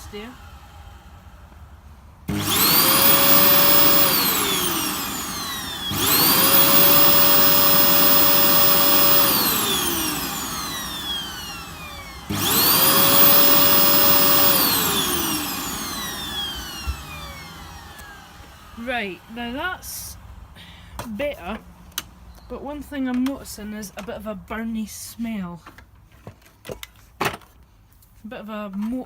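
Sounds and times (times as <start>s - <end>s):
vacuum cleaner motor whining: 2.3s - 20.0s.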